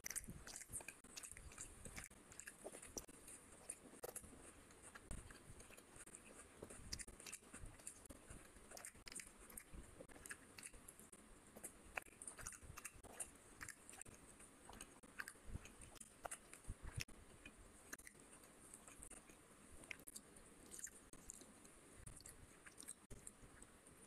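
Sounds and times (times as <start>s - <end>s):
chewing with wet clicks: 0.0s - 24.0s.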